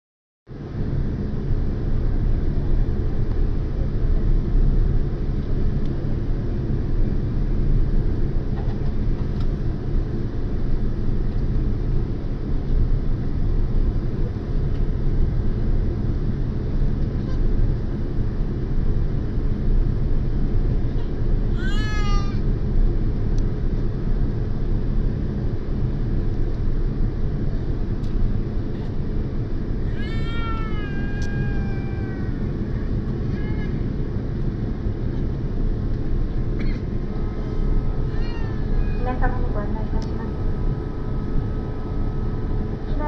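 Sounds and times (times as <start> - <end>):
jet engine and airflow rumble: 0.5 - 43.0.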